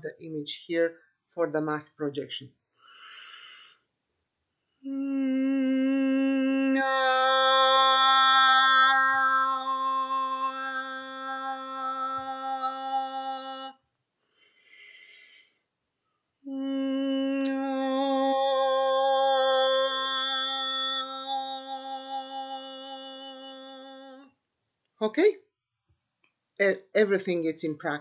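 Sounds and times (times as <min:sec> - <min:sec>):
breath drawn: 0:02.8 - 0:03.9, 0:14.3 - 0:15.6.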